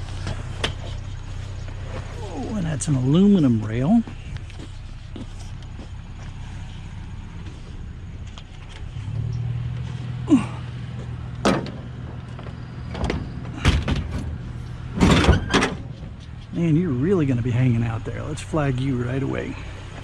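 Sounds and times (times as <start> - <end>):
vehicle engine idling: 0.0 - 20.0
metal knocks and clunks: 11.0 - 16.5.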